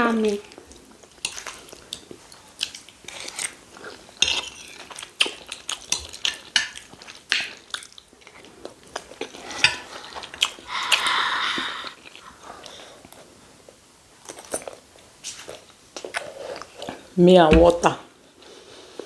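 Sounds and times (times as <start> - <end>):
chewing: 0.2 - 13.4, 14.3 - 17.0
cutlery clinking on plates: 4.2 - 7.6, 9.1 - 10.2.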